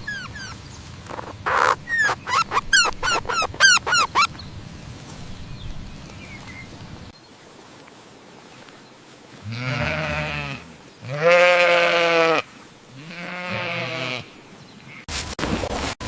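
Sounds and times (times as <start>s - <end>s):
goat or sheep bleating: 9.4s - 14.3s.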